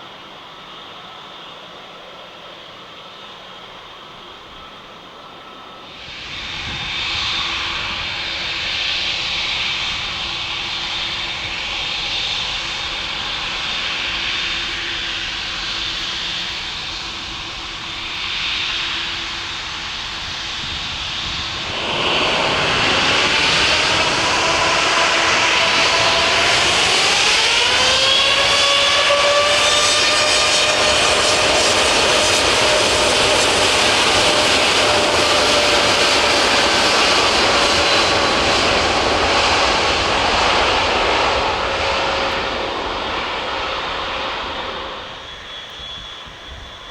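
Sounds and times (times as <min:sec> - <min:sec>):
jet engine whine climbing: 0:00.0 - 0:46.9
jet engines rushing: 0:00.0 - 0:46.9.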